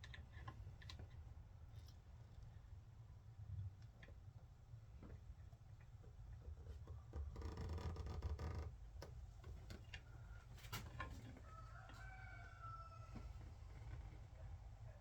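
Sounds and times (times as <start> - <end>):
rooster crowing: 11.4 - 13.2.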